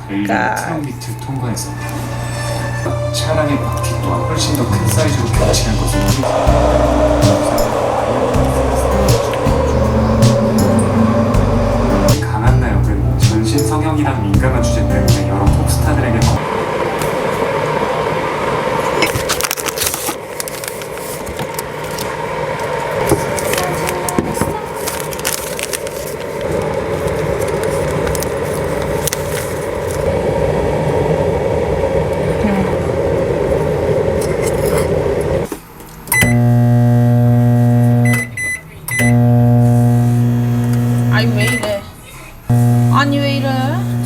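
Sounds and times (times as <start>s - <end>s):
steady rumbling: 3.1s - 16.4s, 42.5s - 44.0s
loud electronic buzzer: 36.2s - 41.7s, 42.5s - 44.0s.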